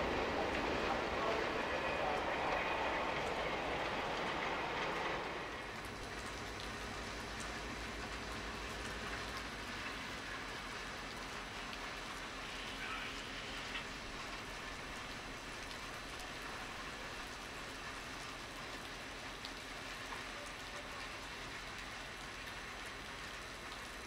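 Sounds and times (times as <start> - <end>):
diesel locomotive idling: 0.0 - 11.5
train cars rolling on rails: 0.0 - 22.0
rain falling: 0.0 - 24.0.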